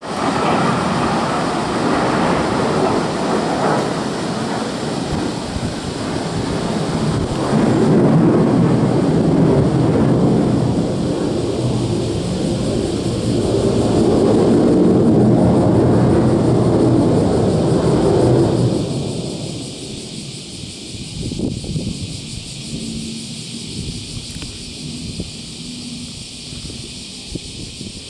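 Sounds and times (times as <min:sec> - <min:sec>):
fighter jet engines roaring: 0:00.0 - 0:28.0.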